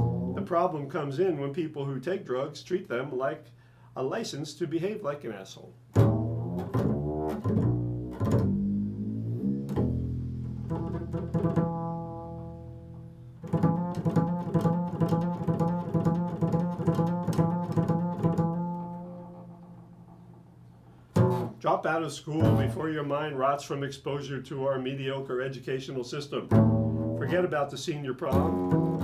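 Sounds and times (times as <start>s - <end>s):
low string instrument plucked: 0.0s - 0.5s, 6.0s - 21.6s, 22.4s - 22.9s, 26.5s - 27.5s, 28.3s - 29.0s.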